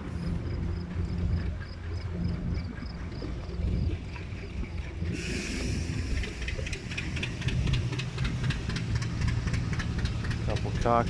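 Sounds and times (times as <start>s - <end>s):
engine rumbling: 0.0s - 11.0s
rapid regular ticking: 0.2s - 11.0s
steam hissing: 5.1s - 9.7s.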